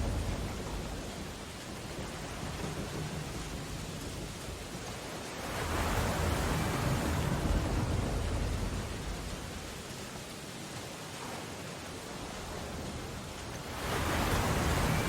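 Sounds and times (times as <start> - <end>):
rain on window glass: 0.0 - 6.2
stormy sea surge: 0.0 - 15.0.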